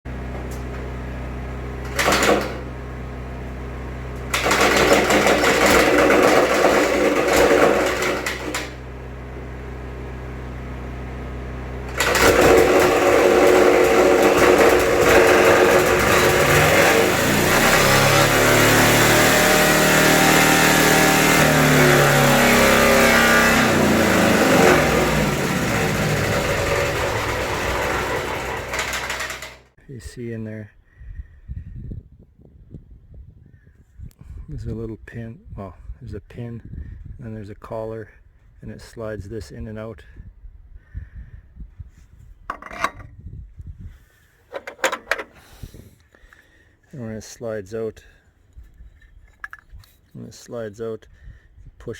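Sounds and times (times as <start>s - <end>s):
engine racing with wavering pitch: 8.4s - 29.6s.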